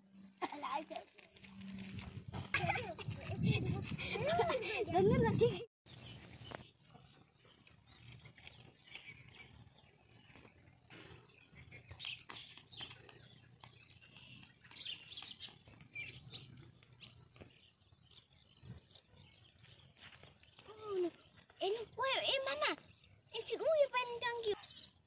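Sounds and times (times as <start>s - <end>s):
bird chirps: 5.9s - 25.0s.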